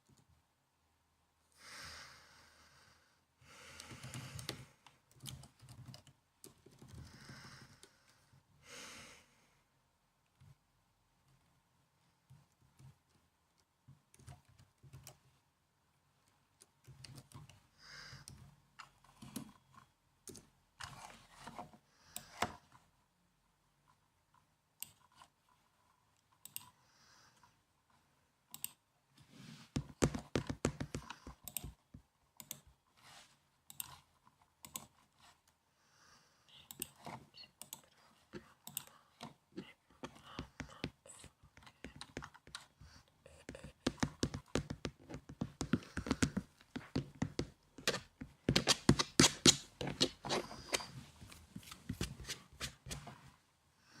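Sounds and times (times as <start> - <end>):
laptop keyboard typing: 3.8 - 8.0, 29.8 - 32.7, 36.7 - 39.4, 40.0 - 50.8.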